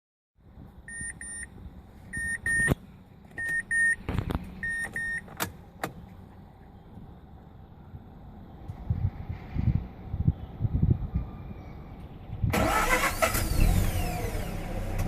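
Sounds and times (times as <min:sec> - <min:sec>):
car warning chime beeping: 0:00.9 - 0:01.5, 0:02.1 - 0:02.8, 0:03.4 - 0:04.0, 0:04.6 - 0:05.3.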